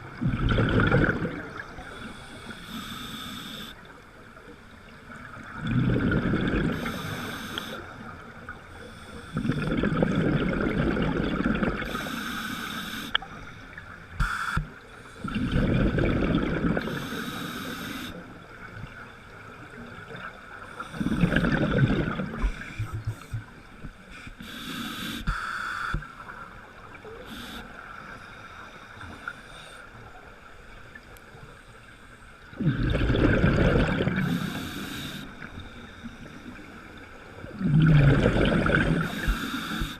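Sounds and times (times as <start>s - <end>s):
rumbling surges of water: 32.5s - 34.7s, 37.4s - 39.6s.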